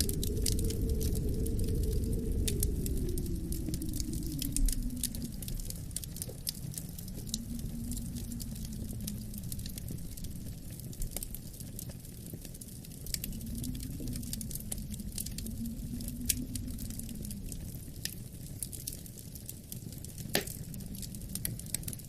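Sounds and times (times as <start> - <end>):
faint wind moan: 0.0 - 22.0
low wind rumble: 0.0 - 22.0
wood fire crackling: 0.0 - 22.0.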